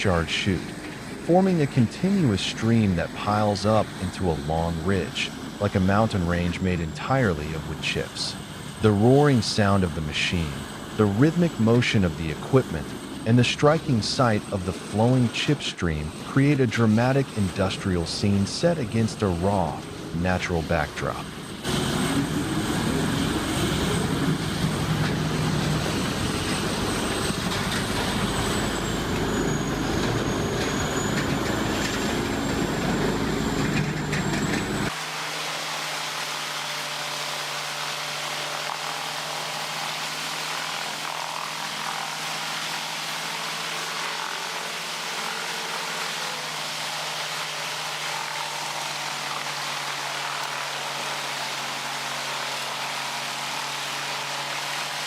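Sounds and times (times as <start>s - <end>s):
log grinder running: 21.6s - 55.0s.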